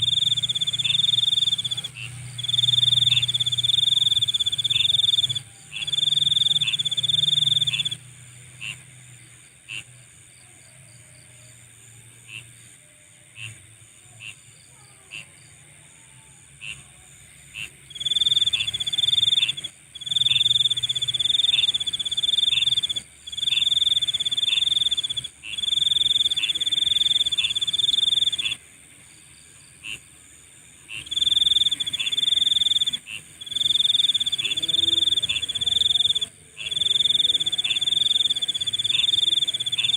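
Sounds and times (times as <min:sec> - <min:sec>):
single insect chirps: 0:00.0 - 0:08.0, 0:17.6 - 0:39.9
insects pulsing trill: 0:00.0 - 0:39.9.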